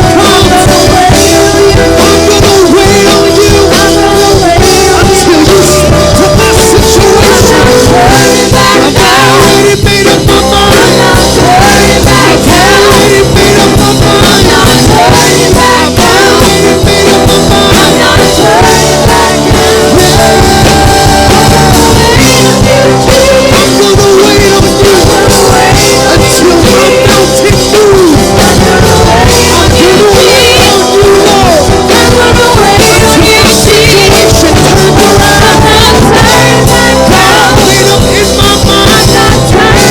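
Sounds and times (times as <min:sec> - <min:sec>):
band playing rock music: 0:00.0 - 0:39.9
person singing: 0:00.0 - 0:39.9.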